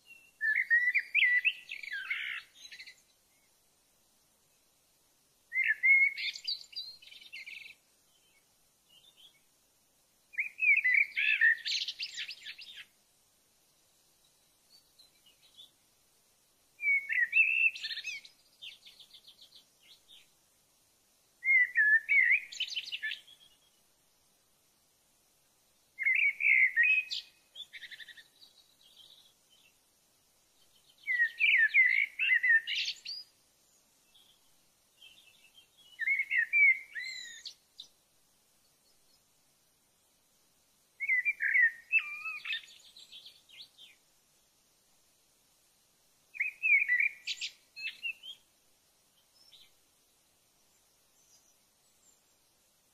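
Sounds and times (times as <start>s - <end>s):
songbird singing warbled phrases: 0.0s - 3.6s, 5.5s - 9.5s, 10.3s - 13.0s, 16.8s - 20.4s, 21.4s - 24.0s, 26.0s - 29.8s, 30.6s - 38.0s, 41.0s - 44.1s, 46.3s - 48.5s, 49.2s - 49.9s, 50.6s - 52.4s.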